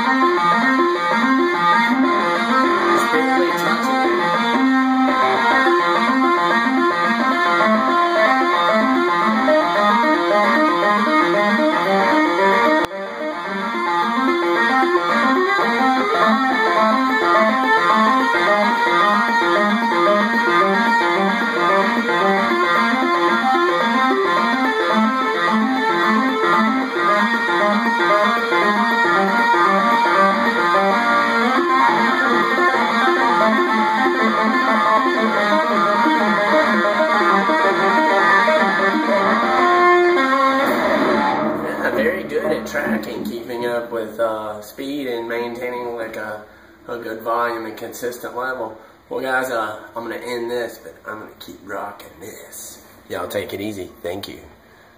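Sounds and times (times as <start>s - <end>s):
electric guitar fast lead: 0.0s - 44.0s.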